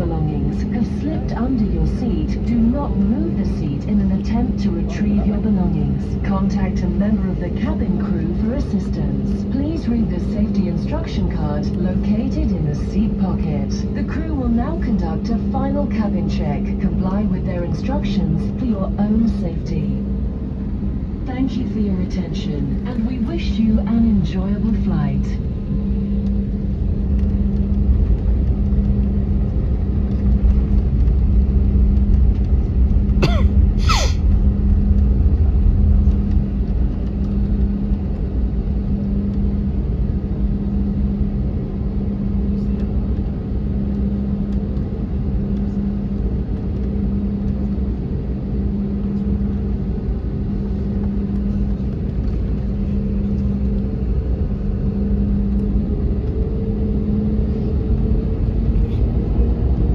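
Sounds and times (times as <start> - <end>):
aircraft engine hum: 0.0 - 59.9
low rumble: 0.0 - 59.9
short sounds: 33.3 - 34.2.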